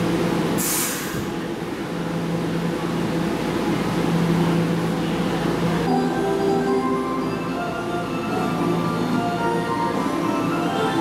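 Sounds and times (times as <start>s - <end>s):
short hiss: 0.6s - 1.2s
electric train equipment humming: 1.2s - 11.0s.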